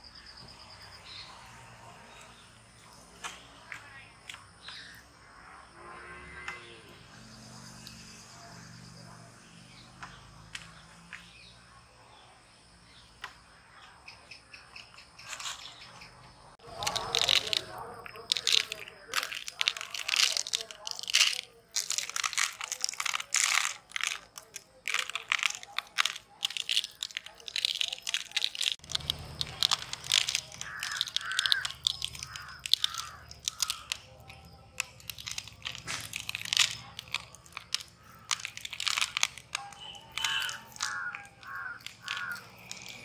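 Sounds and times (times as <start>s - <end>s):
crunching and chewing food: 16.6s - 43.0s.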